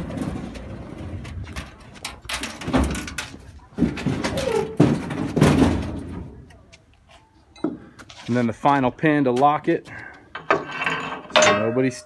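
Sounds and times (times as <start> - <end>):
metal ramp clunks and knocks: 0.0 - 6.4, 10.3 - 12.0.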